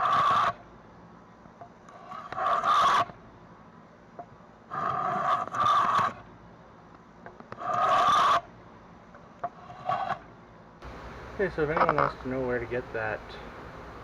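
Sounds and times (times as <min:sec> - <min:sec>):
hand plane scraping along wood: 0:04.7 - 0:06.1.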